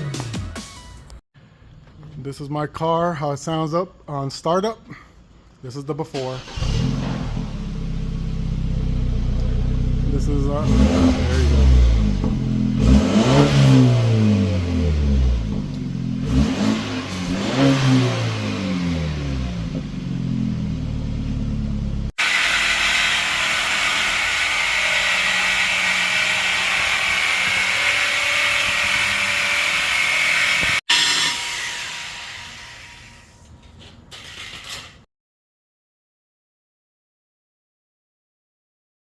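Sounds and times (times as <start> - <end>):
car engine revving: 6.4 - 30.9.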